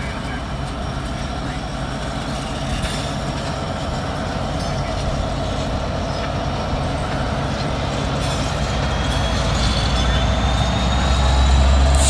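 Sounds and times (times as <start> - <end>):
freight train rumble and rail noise: 0.0 - 12.0
high wheel squeal: 8.2 - 12.0.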